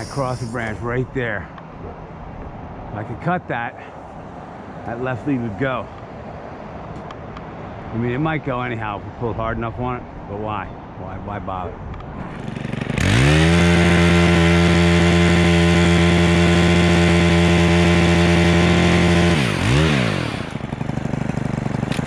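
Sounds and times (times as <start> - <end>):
chainsaw revving and cutting branch: 12.2 - 22.0.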